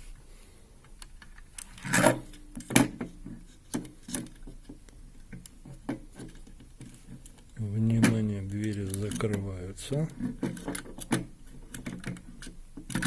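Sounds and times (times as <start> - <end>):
light clicks and knocks: 3.7 - 13.0.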